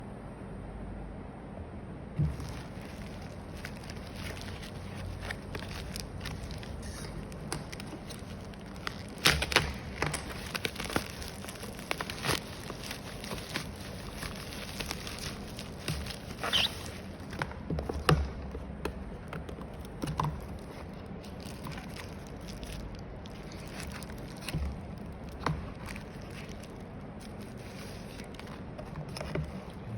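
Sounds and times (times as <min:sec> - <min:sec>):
packaging clicks and taps: 0:02.2 - 0:22.9.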